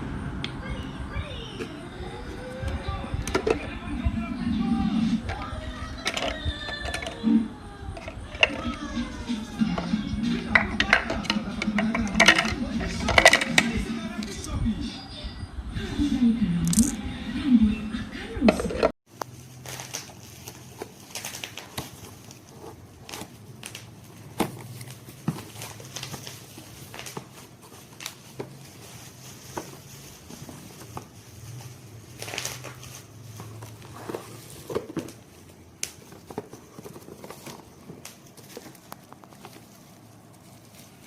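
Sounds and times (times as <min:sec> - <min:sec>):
handling clicks and knocks: 0:09.8 - 0:13.8, 0:33.4 - 0:40.4.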